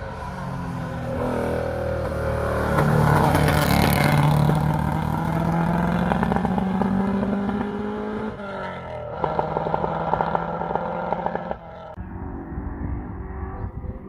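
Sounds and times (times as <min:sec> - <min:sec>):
rally car engine revving: 0:01.0 - 0:14.0.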